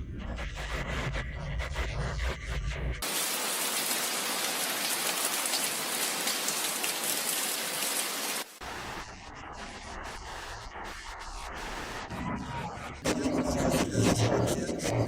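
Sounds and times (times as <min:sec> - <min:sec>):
heavy rain falling: 0:03.0 - 0:08.6.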